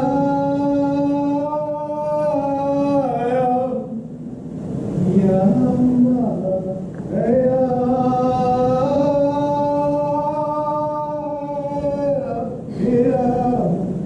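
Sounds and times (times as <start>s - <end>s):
man singing a held note: 5.0s - 14.0s.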